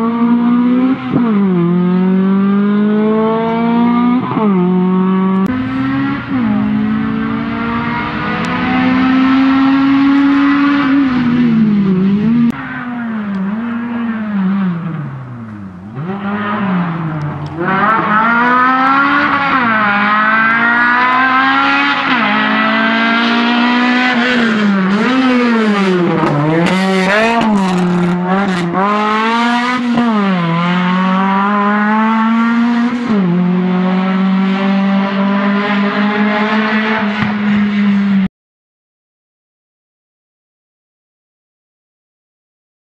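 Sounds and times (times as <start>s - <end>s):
car engine revving and shifting: 0.0s - 38.3s.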